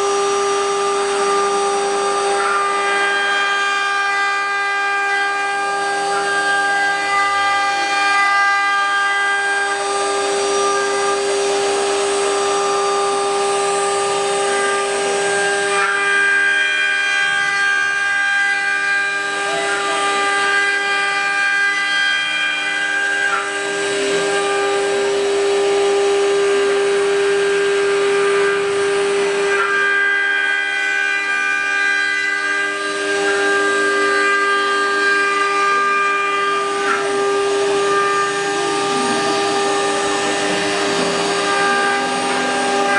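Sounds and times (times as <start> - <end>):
router spindle whining: 0.0 - 42.9
machine moving tones: 31.6 - 42.9.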